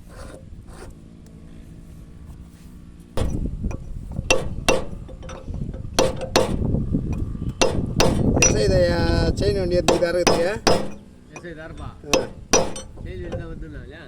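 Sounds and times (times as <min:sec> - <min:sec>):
metallic knocks and clanks: 0:03.2 - 0:13.6.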